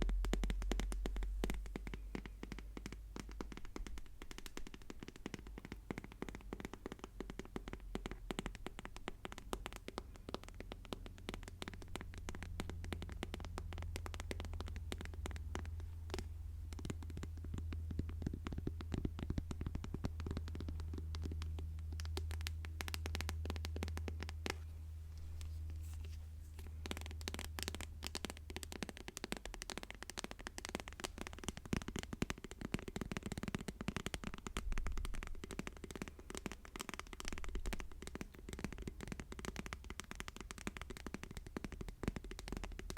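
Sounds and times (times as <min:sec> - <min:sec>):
fast light tapping: 0:00.0 - 0:42.9.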